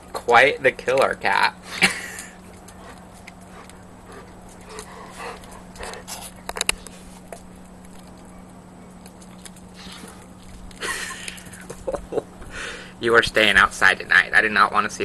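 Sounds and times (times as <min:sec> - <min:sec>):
steady low hum: 0:00.0 - 0:15.0
cat chewing mouse: 0:02.4 - 0:11.5.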